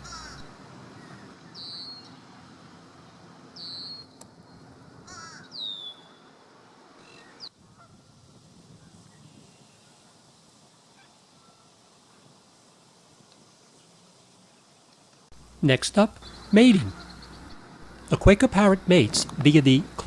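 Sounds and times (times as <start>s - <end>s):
parakeets squawking: 0.0s - 0.5s, 16.0s - 20.0s
outdoor background hum: 0.0s - 10.0s, 11.0s - 20.0s.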